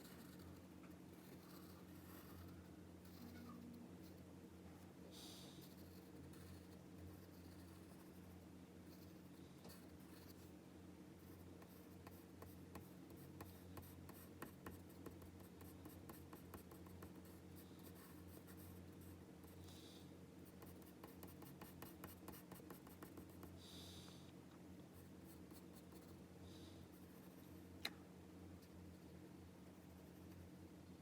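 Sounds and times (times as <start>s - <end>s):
pencil scratching on paper: 0.0s - 4.2s, 5.6s - 8.3s, 11.3s - 19.6s, 20.5s - 23.6s
low steady hum: 0.0s - 31.0s.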